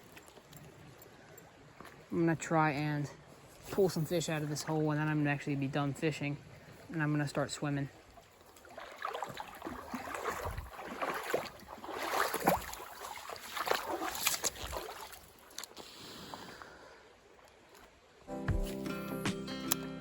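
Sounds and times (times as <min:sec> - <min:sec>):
water sloshing and splashing: 0:00.0 - 0:18.2
guitar music: 0:18.3 - 0:20.0.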